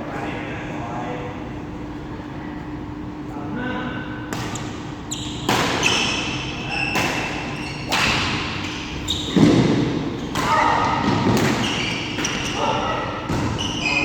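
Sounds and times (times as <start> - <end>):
shoes squeaking: 4.5 - 14.0
racket striking shuttlecock: 5.4 - 6.2, 6.9 - 12.4.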